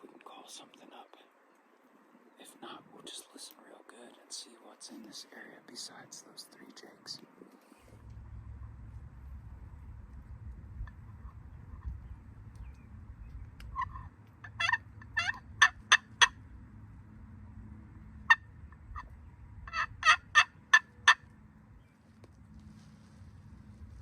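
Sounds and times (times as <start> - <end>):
squeaky turkey call yelps: 13.8 - 16.4, 19.7 - 21.2.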